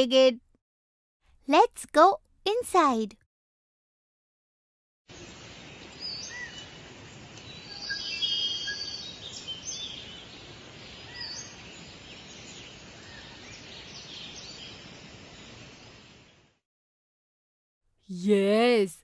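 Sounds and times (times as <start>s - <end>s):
steady background hiss: 5.1s - 16.4s
birds chirping: 5.2s - 16.4s.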